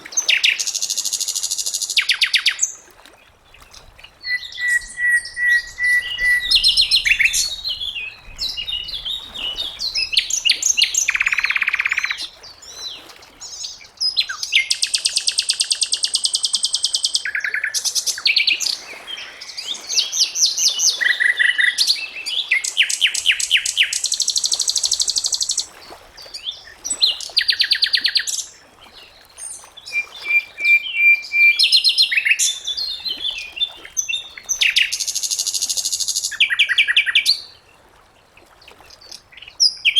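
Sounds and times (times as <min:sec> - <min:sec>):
songbird singing varied song: 0:04.2 - 0:12.8.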